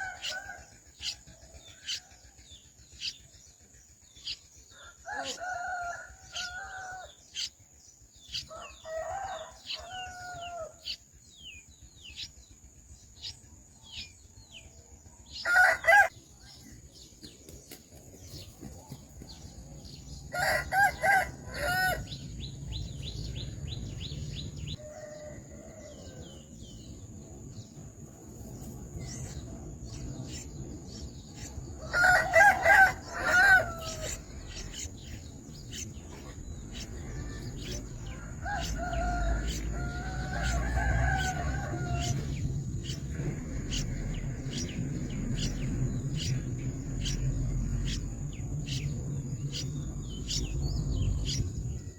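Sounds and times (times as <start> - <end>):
rooster crowing: 0.0 - 1.2, 4.7 - 7.1, 8.4 - 10.9, 15.4 - 16.1, 20.3 - 22.2, 24.3 - 26.4, 31.8 - 34.6, 37.0 - 42.4.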